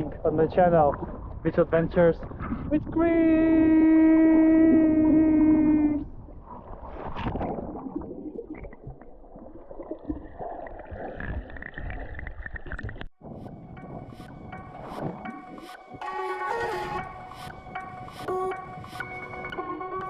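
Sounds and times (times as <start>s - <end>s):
seawater sloshing and gurgling: 0.0s - 15.8s.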